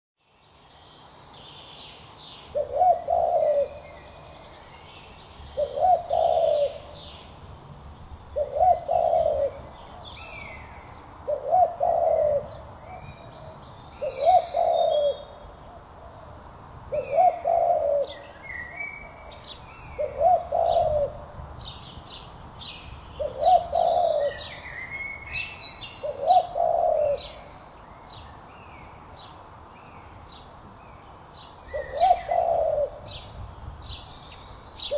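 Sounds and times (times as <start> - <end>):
bird's low cooing call: 2.4 - 7.4, 8.3 - 28.2, 31.6 - 34.9
small birds chirping: 21.6 - 34.9.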